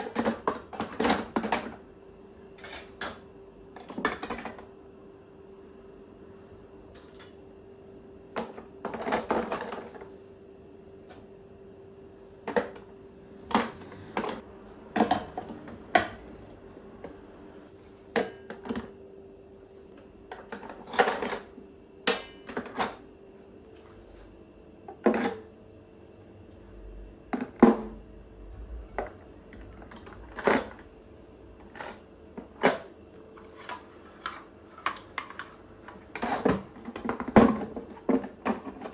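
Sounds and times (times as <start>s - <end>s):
kitchenware clinking and clattering: 0.0s - 1.7s, 2.6s - 4.6s, 20.4s - 21.5s
faint steady hum: 0.0s - 38.9s.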